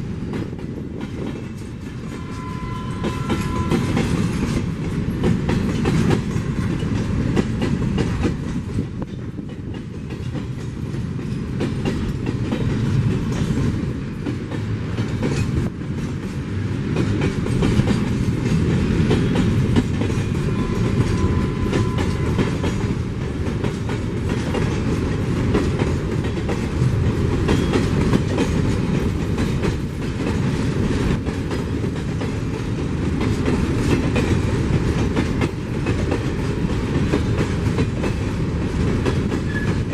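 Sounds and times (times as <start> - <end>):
train wheels clattering over rail joints: 0.2 - 39.9.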